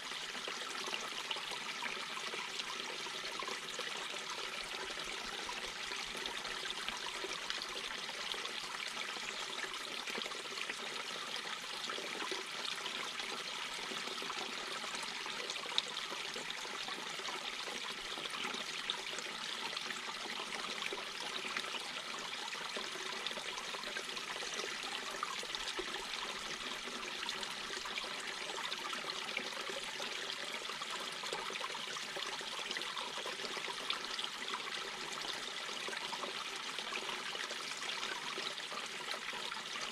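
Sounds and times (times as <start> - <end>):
brook babbling over rocks: 0.0 - 39.9.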